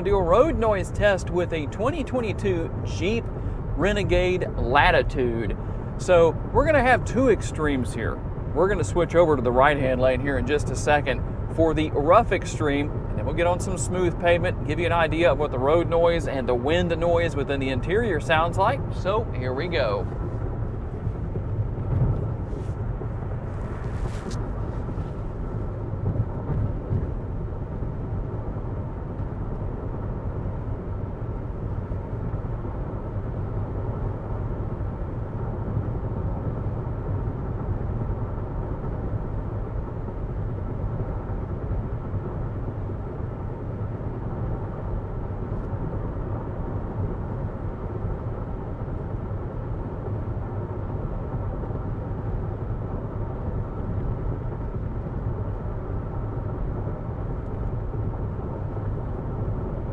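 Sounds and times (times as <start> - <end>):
tyre rumble inside car cabin: 19.7 - 27.4.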